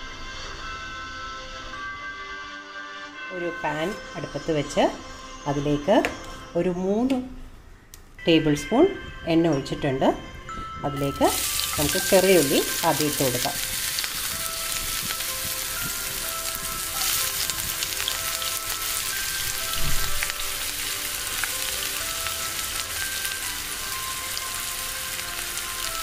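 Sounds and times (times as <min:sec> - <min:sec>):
faint background music: 0:00.0 - 0:26.0
shallots sizzling in hot oil: 0:11.0 - 0:26.0.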